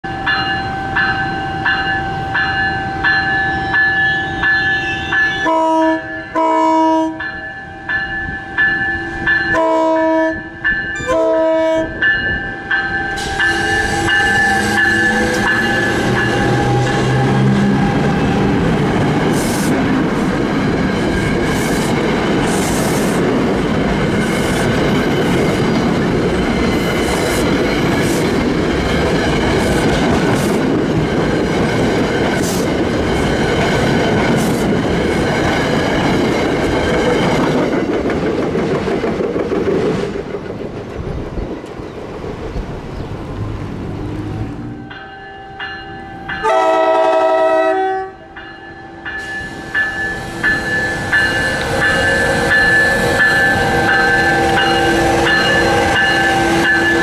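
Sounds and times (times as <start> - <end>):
grade crossing bells ringing: 0.0 - 6.5, 7.1 - 19.0, 44.6 - 47.1, 48.1 - 57.0
train passing close by: 0.0 - 57.0
locomotive horn blasts: 4.1 - 7.2, 9.5 - 12.0, 46.4 - 48.4.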